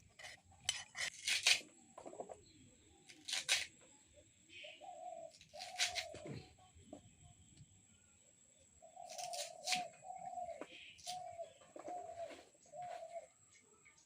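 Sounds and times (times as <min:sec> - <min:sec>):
blade scraping and chopping fish: 0:00.0 - 0:01.6
bird calling: 0:04.5 - 0:06.6, 0:08.8 - 0:13.4.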